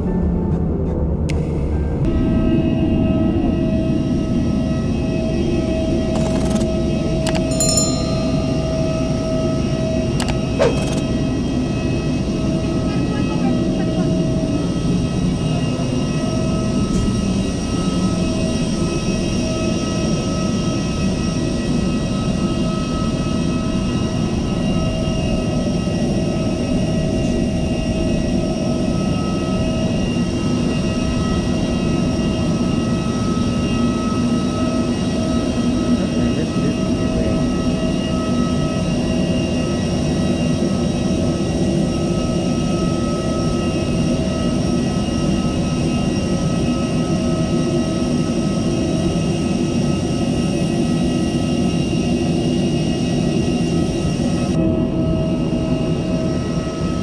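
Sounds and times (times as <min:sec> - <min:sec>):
constant whining tones: 0:00.1 - 0:25.9.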